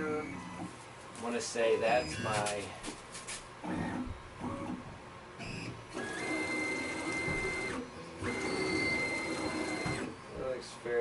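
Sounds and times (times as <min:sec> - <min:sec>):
stepper motors whining: 0:01.7 - 0:02.6, 0:05.4 - 0:10.6.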